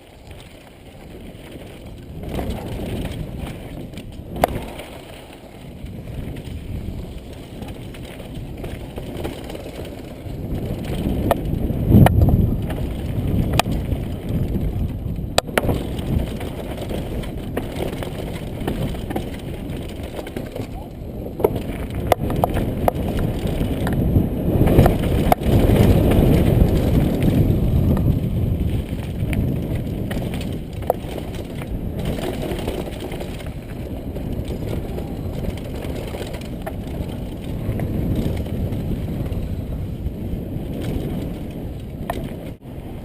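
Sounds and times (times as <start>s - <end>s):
bike rattling over bumps: 0.0s - 43.0s
bike tyres rumbling over rocks: 0.0s - 43.0s.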